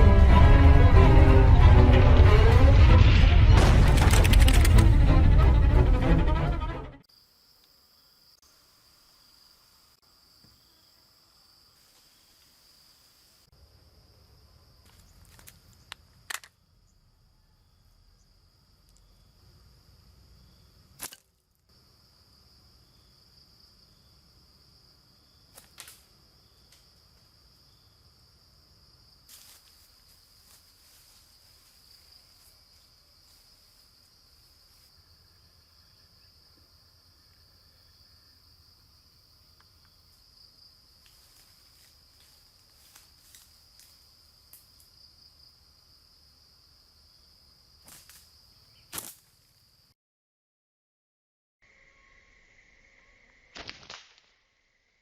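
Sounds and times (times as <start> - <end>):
sharp clicks: 3.8 - 5.0
insects droning: 7.1 - 50.0, 51.6 - 55.0.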